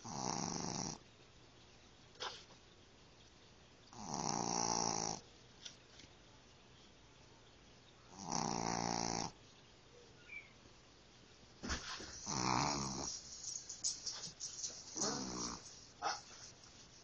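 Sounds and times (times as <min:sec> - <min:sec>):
puppy snoring: 0:00.0 - 0:01.0, 0:03.9 - 0:05.2, 0:08.1 - 0:09.4, 0:12.2 - 0:13.7, 0:14.8 - 0:15.9.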